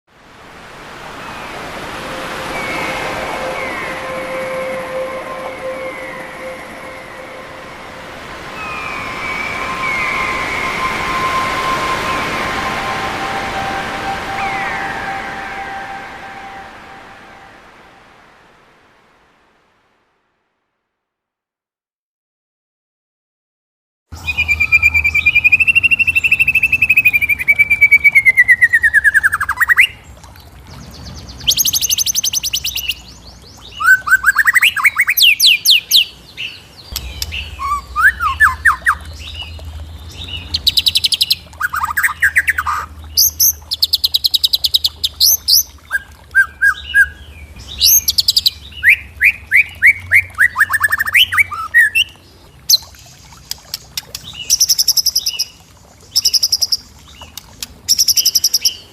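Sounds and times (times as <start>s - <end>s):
birds singing and calling: 1.2s - 17.5s, 24.2s - 58.9s.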